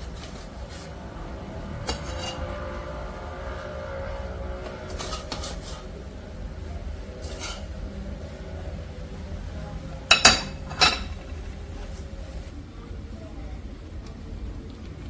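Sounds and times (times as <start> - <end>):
steady low hum: 0.0 - 15.0
dishes and utensils clinking: 4.8 - 5.9, 10.0 - 11.7.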